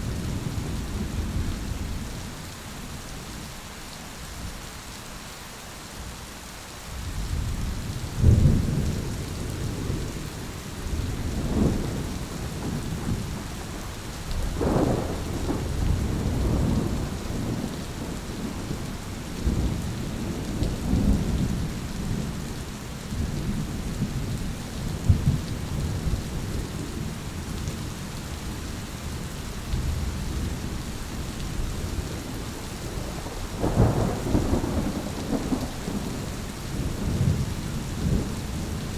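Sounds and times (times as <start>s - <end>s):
heavy rain: 0.0s - 38.9s
rolling thunder: 10.8s - 22.4s, 23.1s - 27.1s, 31.6s - 38.9s.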